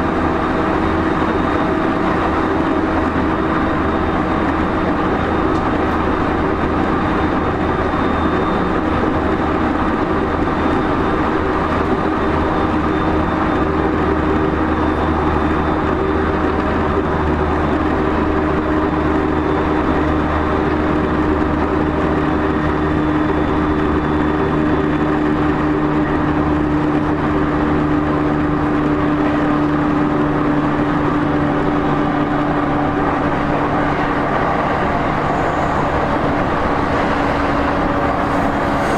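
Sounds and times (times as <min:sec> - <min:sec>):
train running drone: 0:00.0 - 0:38.9
faint high whine: 0:29.3 - 0:38.9.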